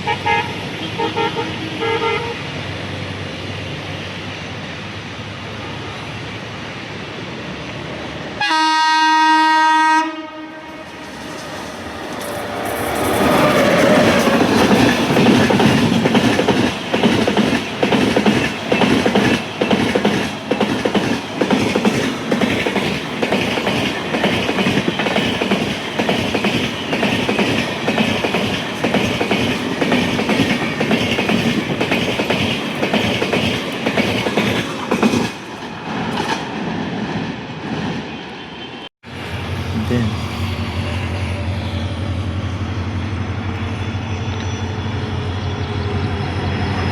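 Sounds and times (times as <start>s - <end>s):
train wagons rumbling: 10.7s - 38.0s.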